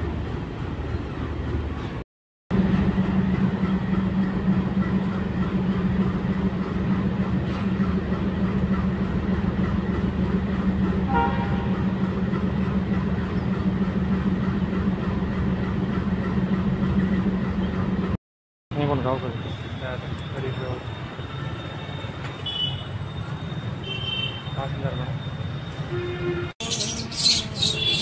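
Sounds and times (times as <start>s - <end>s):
train engine humming: 0.0s - 18.2s.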